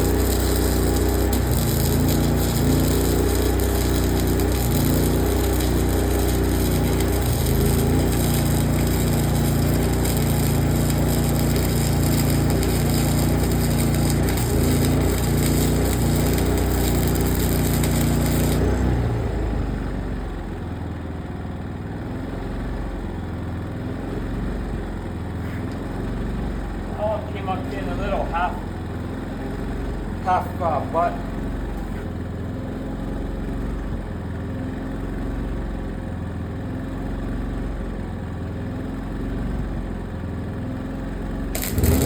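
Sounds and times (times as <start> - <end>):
arc welding crackling sizzle: 0.0 - 19.4, 41.5 - 42.0
low machine hum: 0.0 - 20.3.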